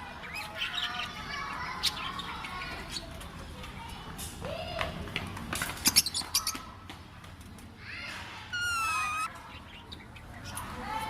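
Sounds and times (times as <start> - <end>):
parrot whistled note: 8.5 - 9.3
parrot squeaky calls: 8.5 - 10.6.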